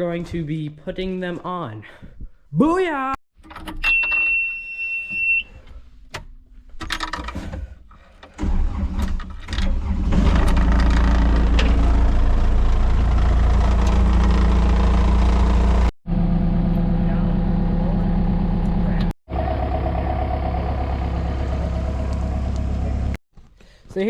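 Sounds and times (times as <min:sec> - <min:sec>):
high beep: 0:03.8 - 0:05.5
diesel engine starting and running: 0:08.3 - 0:23.2.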